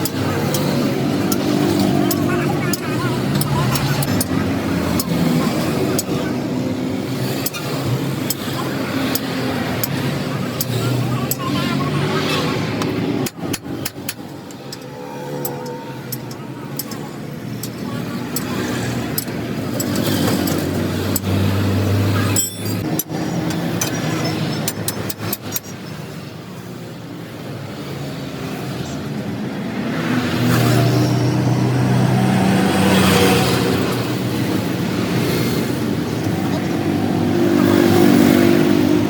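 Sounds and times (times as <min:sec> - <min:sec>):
sharp clicks: 0:12.8 - 0:21.5.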